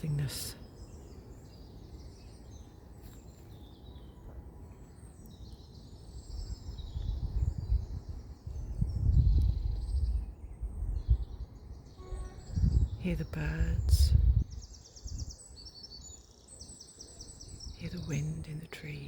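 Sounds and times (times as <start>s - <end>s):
small birds singing and chirping: 0.0s - 19.0s
wind gusting rumble: 6.1s - 15.4s.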